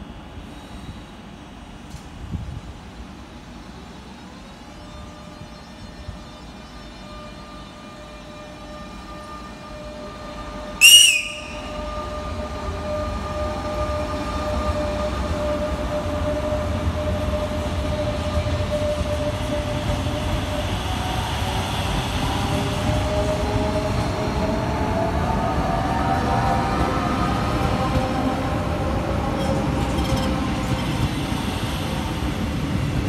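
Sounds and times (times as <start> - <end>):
train wheels rumbling on rails: 0.0 - 33.0
train horn blast: 7.8 - 14.1.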